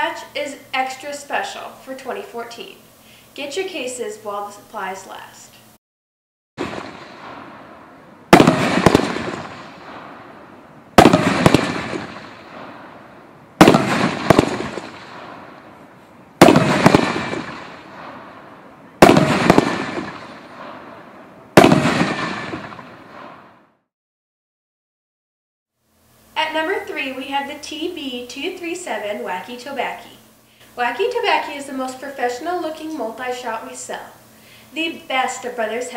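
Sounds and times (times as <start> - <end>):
fireworks booming: 6.6 - 23.6.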